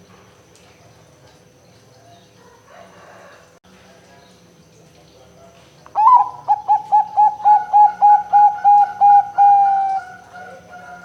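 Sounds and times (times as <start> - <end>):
dove cooing song: 5.9 - 11.0.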